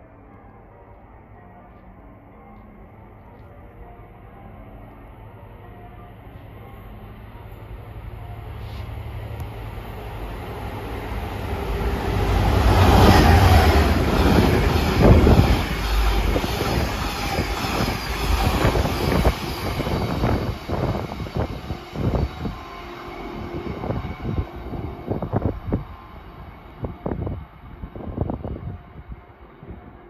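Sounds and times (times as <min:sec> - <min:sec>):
train locomotive rumbling past: 0:06.5 - 0:30.0.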